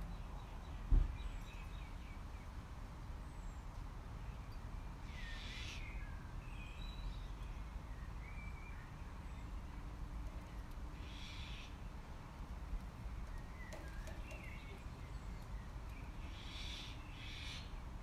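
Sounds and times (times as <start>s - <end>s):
thump: 0.9s - 1.2s
birds chirping: 6.8s - 17.8s.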